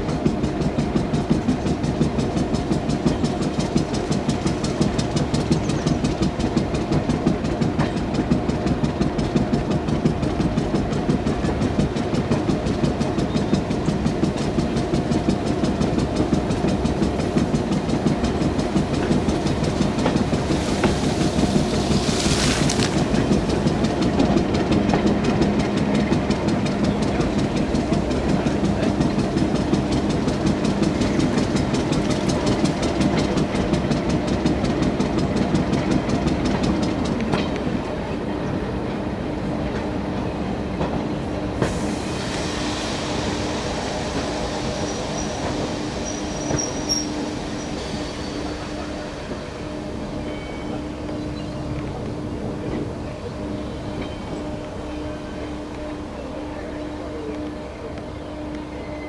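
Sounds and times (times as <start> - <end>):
train droning: 0.0 - 59.0
wheels clicking over rail joints: 0.1 - 37.9.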